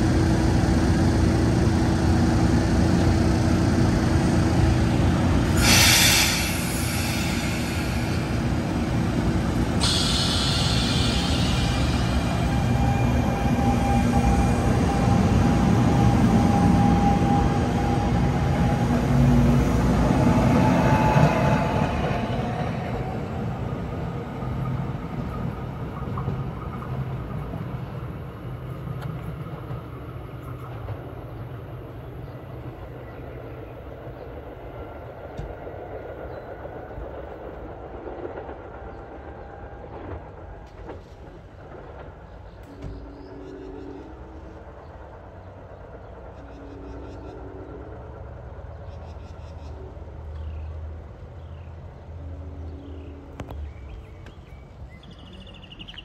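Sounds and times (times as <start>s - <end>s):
train steady whine: 0.0s - 56.0s
train wheels clattering: 5.6s - 15.1s.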